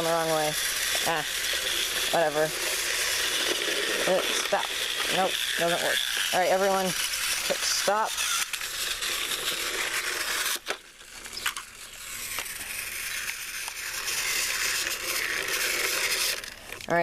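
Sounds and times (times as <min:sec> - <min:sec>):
toy train motors whirring: 0:00.0 - 0:17.0
small clicks: 0:10.5 - 0:11.7.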